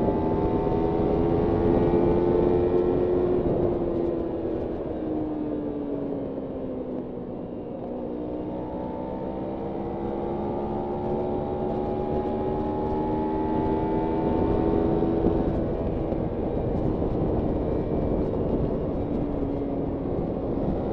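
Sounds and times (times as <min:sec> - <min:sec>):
wind on microphone: 0:00.0 - 0:06.1, 0:09.4 - 0:20.9
motorcycle engine: 0:08.8 - 0:20.9.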